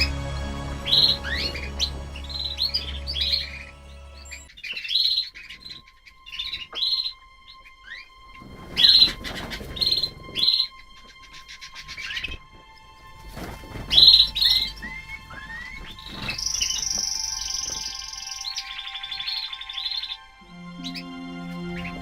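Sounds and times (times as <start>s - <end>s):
background music: 0.0s - 4.5s, 5.4s - 22.0s
small birds chirping: 13.7s - 20.2s.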